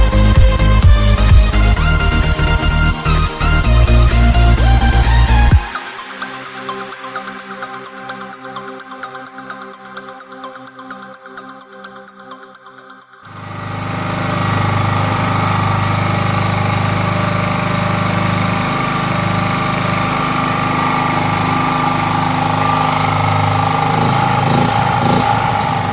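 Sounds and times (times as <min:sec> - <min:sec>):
generator engine running: 0:00.0 - 0:05.7, 0:13.3 - 0:25.9
background music: 0:00.0 - 0:13.2.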